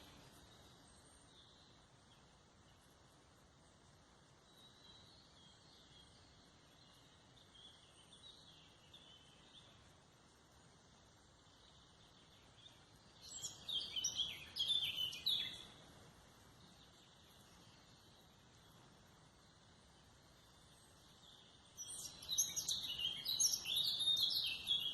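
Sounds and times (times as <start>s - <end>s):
faint forest background noise: 0.0s - 24.9s
songbird singing: 0.0s - 24.9s.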